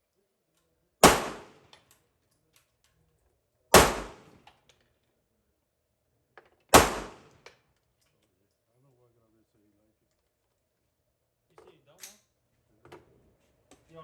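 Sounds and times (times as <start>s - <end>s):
pistol shots with echo: 1.0s - 1.6s, 3.7s - 4.4s, 6.7s - 7.3s.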